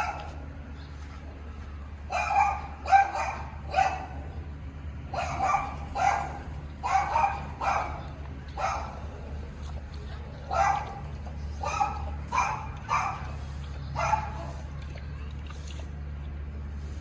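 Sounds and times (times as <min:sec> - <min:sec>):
dog barking: 0:02.1 - 0:04.2, 0:05.1 - 0:09.0, 0:10.5 - 0:11.0, 0:11.6 - 0:13.4, 0:14.0 - 0:14.6.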